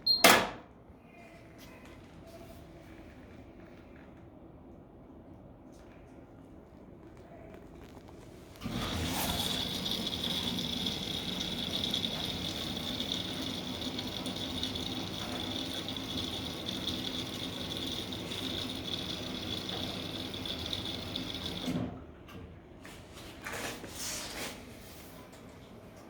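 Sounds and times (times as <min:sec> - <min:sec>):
washing machine humming: 0:08.3 - 0:24.0.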